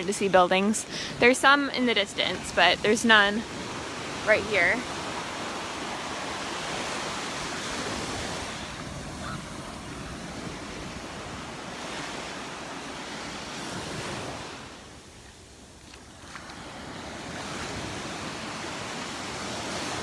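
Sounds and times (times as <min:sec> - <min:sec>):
surf breaking and washing: 0:00.0 - 0:20.0
wind on microphone: 0:01.7 - 0:15.1.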